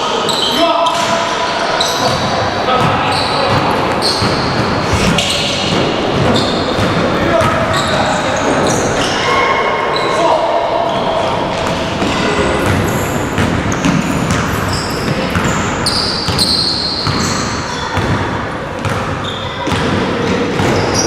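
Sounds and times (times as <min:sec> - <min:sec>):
echoing hubbub of players: 0:00.0 - 0:21.0
sneakers squeaking on court: 0:00.1 - 0:21.0
basketball bouncing: 0:02.1 - 0:07.8, 0:11.5 - 0:21.0.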